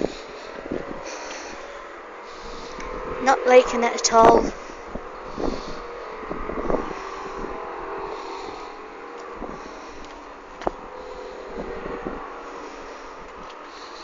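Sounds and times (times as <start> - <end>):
low rumble: 0.0 - 14.0
drone of held tones: 4.6 - 14.0.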